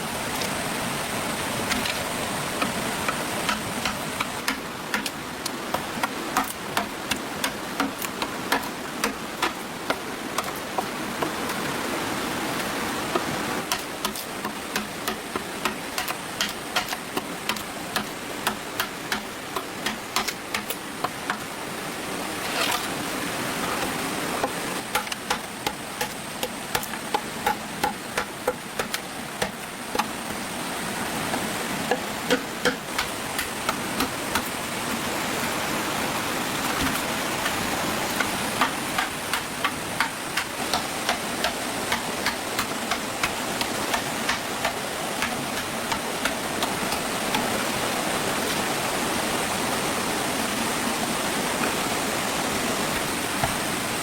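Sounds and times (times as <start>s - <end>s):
steady rushing noise: 0.0s - 54.0s
sharp taps and knocks: 2.6s - 11.7s, 13.1s - 21.5s, 24.4s - 30.4s, 31.3s - 34.6s, 36.7s - 47.7s.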